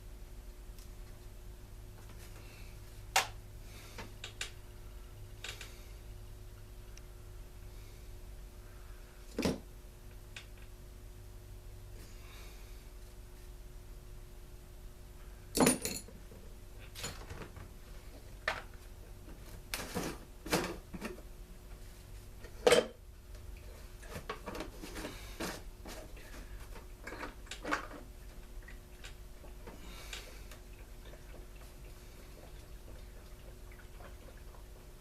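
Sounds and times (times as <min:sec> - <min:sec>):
faint steady hum: 0:00.0 - 0:35.0
tools clinking on workbench: 0:15.6 - 0:16.1.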